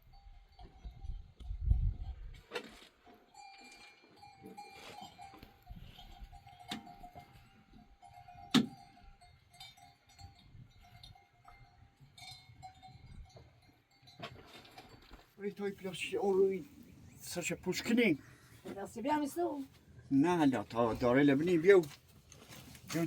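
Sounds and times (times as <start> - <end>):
livestock bells ringing: 0.0 - 2.2, 3.3 - 16.7.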